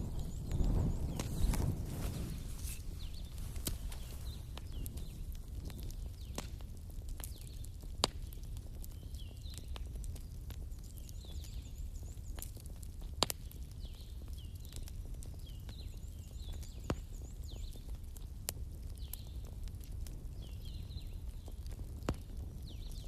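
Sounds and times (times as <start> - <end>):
storm wind rumble: 0.0 - 6.2
wood fire crackling: 0.0 - 23.0.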